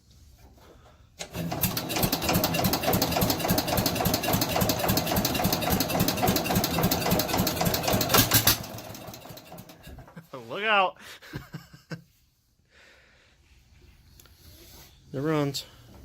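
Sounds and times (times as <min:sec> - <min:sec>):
loud unmuffled engine running: 0:01.4 - 0:09.8.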